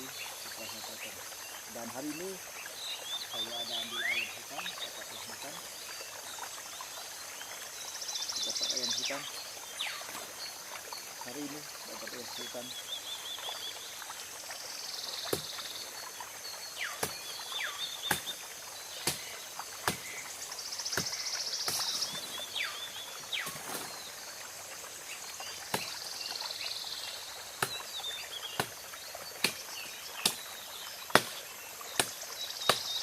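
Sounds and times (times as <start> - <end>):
birds whistling: 3.0 - 4.9, 16.6 - 18.4
insect buzzes: 9.1 - 33.0
blade chopping into root: 15.3 - 15.6, 16.9 - 17.3, 18.0 - 18.4, 19.0 - 20.2, 21.0 - 22.1, 29.4 - 29.6, 31.1 - 31.4, 32.0 - 32.9.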